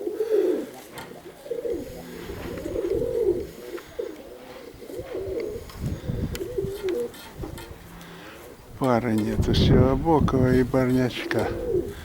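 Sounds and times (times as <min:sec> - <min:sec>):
pigeons cooing: 0:00.0 - 0:12.0
wind rumbling on microphone: 0:01.7 - 0:04.1, 0:04.7 - 0:12.0.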